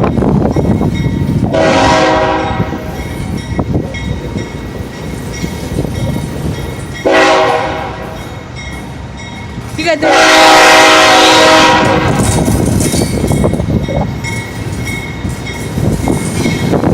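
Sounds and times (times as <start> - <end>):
moving train rumble: 0.0 - 16.9
locomotive air horn blast: 1.5 - 2.9, 7.0 - 8.2, 10.0 - 12.3.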